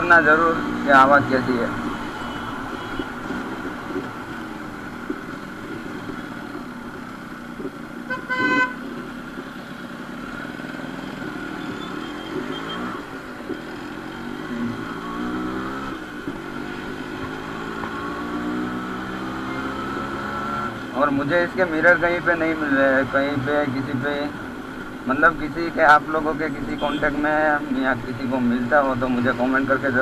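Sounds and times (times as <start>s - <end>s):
vehicle horn honking: 2.2s - 3.2s, 8.1s - 8.9s, 26.8s - 27.1s
motorcycle engine running: 2.2s - 21.0s.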